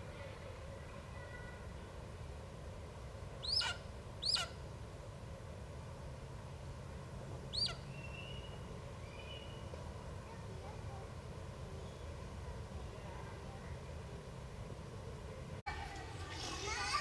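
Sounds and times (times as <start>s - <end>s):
bird calling: 3.4s - 4.6s, 7.5s - 9.7s.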